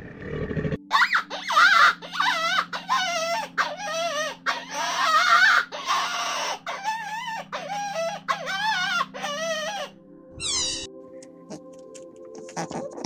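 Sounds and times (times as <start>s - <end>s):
animal calling: 0.8s - 10.9s.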